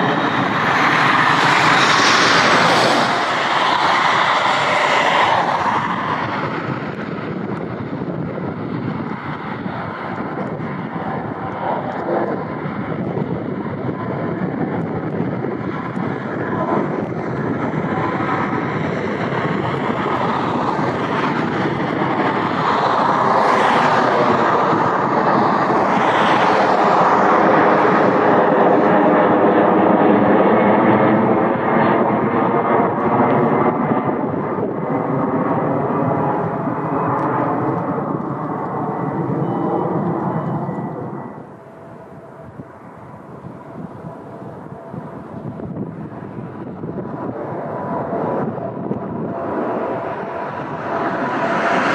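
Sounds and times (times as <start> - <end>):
jet airliner engines passing: 0.0 - 51.9.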